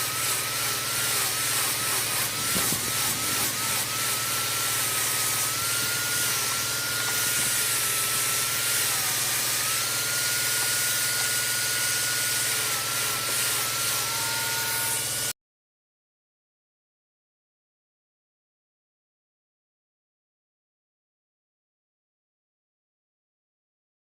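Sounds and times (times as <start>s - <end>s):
power tool motor whining: 0.0s - 15.4s.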